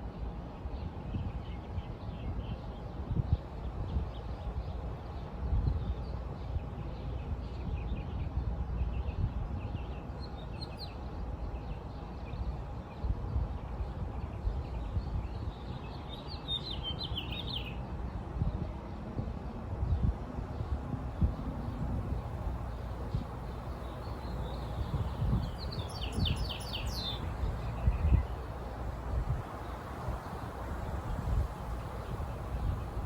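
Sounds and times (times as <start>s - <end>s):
birds chirping: 22.7s - 28.9s.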